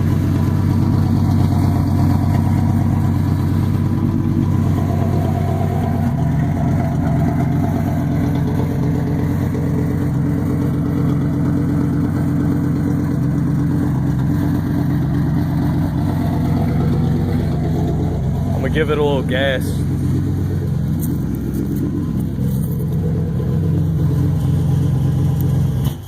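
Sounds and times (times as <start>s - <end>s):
car engine idling loudly: 0.0s - 26.0s.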